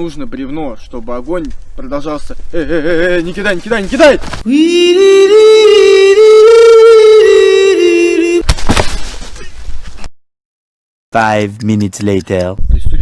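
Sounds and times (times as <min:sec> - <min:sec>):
person holding a vocal note: 0:04.4 - 0:08.4.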